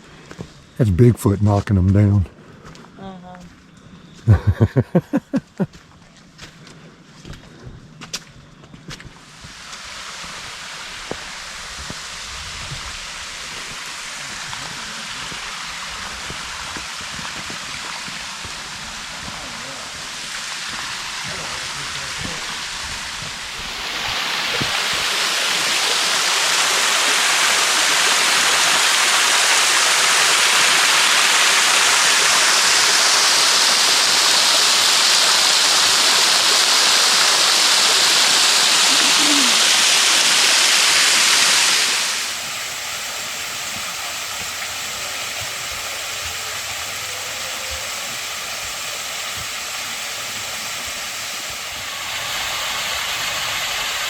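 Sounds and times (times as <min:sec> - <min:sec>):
water rushing: 0:09.2 - 0:54.0
waterfall roaring: 0:13.5 - 0:54.0.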